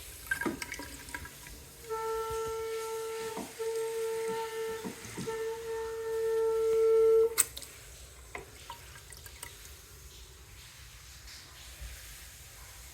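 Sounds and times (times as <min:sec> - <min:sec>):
water pipes high-pitched whine: 0:00.0 - 0:11.9
pipe clicks: 0:07.3 - 0:09.5.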